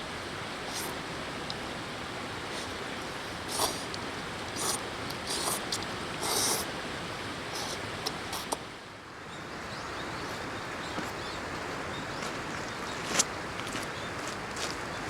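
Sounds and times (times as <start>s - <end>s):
river flowing: 0.0s - 9.1s.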